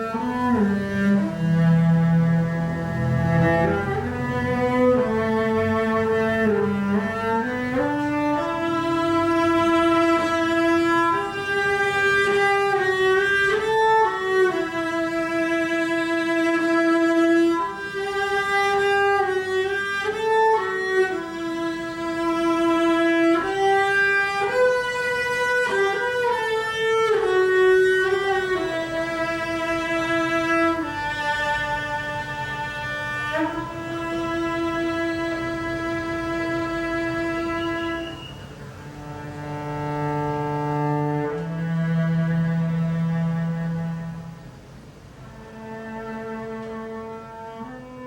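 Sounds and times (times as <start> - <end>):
cello playing slow melody: 0.0 - 48.0.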